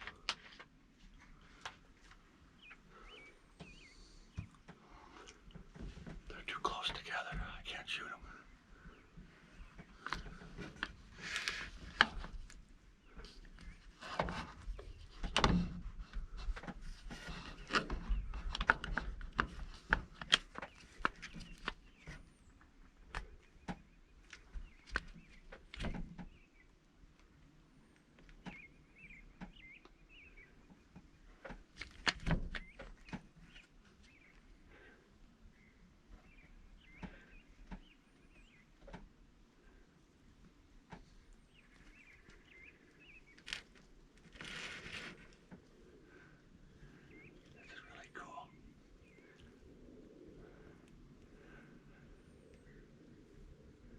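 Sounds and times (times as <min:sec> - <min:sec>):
faint bird chirps: 0:02.5 - 0:05.2, 0:06.3 - 0:10.0, 0:28.4 - 0:31.4, 0:32.5 - 0:38.9, 0:41.1 - 0:43.5, 0:46.0 - 0:50.8.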